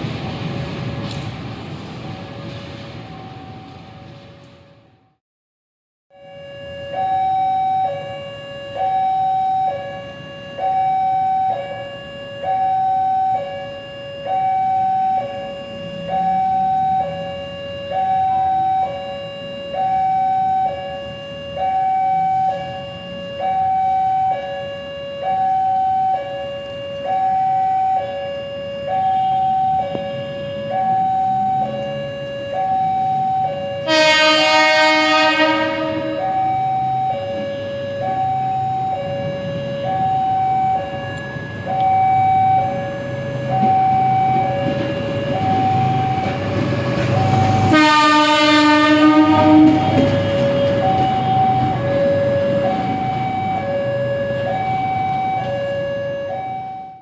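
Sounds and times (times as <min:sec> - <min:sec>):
level crossing alarm two-tone: 0:06.1 - 0:57.0
locomotive horn: 0:33.7 - 0:38.2, 0:47.3 - 0:53.7.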